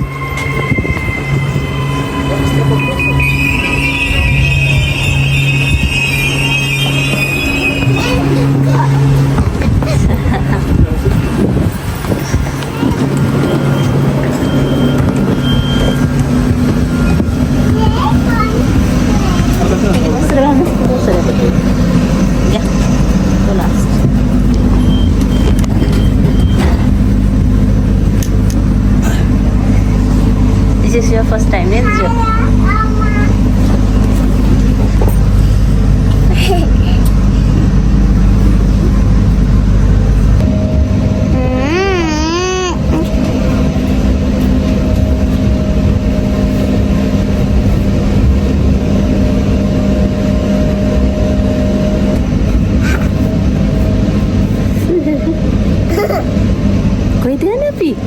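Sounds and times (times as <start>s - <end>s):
electric train rumbling: 0.0s - 58.0s
vehicle engine hum: 0.0s - 58.0s
short wavering voice: 41.2s - 43.1s.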